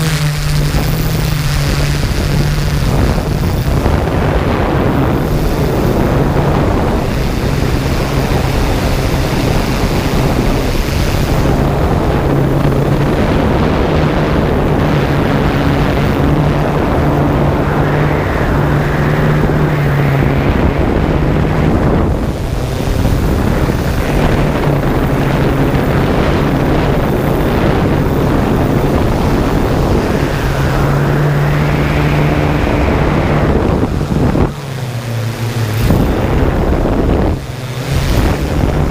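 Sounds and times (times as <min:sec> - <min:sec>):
drone propellers humming: 0:00.0 - 0:38.9
wind noise on microphone: 0:00.0 - 0:38.9.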